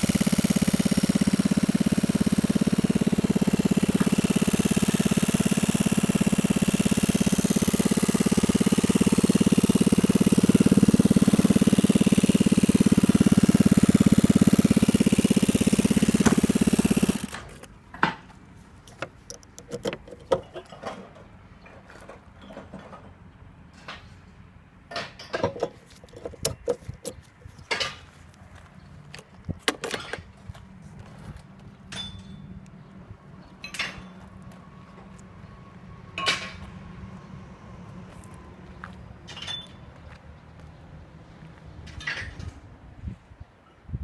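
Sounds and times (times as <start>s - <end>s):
scooter engine idling: 0.0s - 17.7s.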